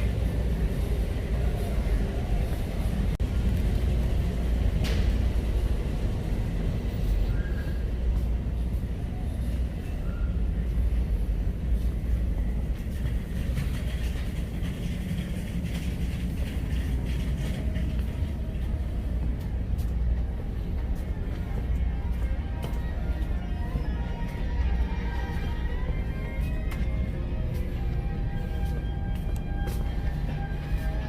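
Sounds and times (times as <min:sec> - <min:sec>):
low ambient rumble: 0:00.0 - 0:31.0
faint background music: 0:06.2 - 0:31.0.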